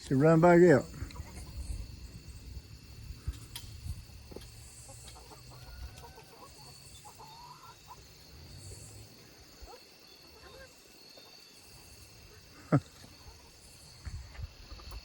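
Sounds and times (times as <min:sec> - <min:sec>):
chickens clucking: 0:00.2 - 0:15.0
faint chicken calls: 0:00.9 - 0:02.6, 0:04.2 - 0:15.0.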